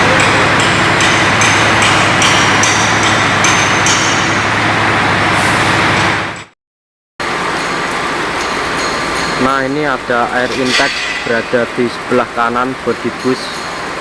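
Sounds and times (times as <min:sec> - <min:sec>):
heavy vehicle engine running: 0:00.0 - 0:06.5, 0:07.2 - 0:10.6.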